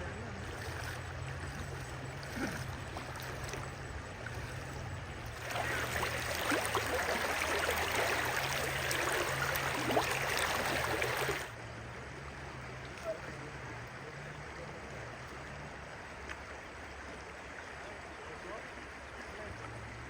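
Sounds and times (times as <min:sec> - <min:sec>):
water splashing and sloshing: 0:00.0 - 0:11.6
low steady hum: 0:00.0 - 0:16.3.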